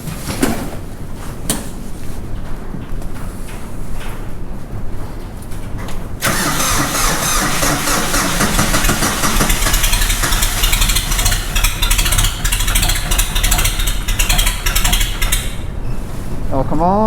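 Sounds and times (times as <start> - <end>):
diesel tractor engine starting: 6.2 - 16.9.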